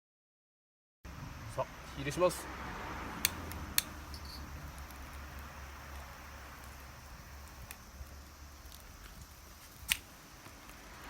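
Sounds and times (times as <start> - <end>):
fire crackling: 1.5 - 11.0
sharp clicks: 3.2 - 10.8.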